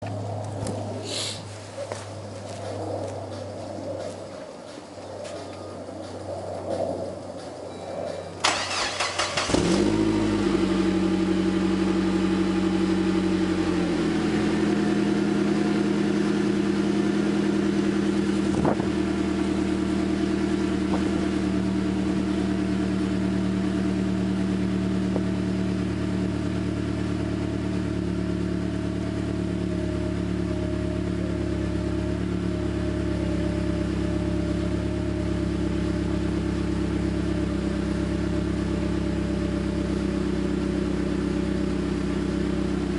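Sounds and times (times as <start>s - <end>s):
car engine idling: 8.0s - 42.9s.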